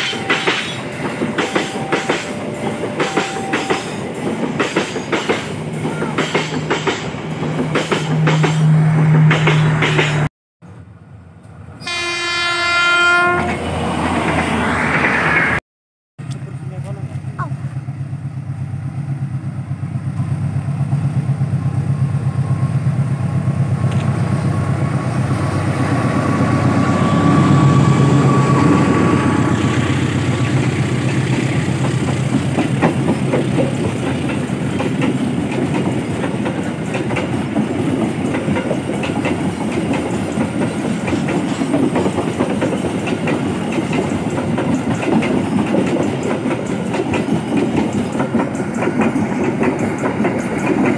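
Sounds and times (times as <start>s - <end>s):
train wheels clickety-clack: 0.0s - 10.3s, 29.9s - 50.9s
locomotive engine hum: 16.2s - 50.9s.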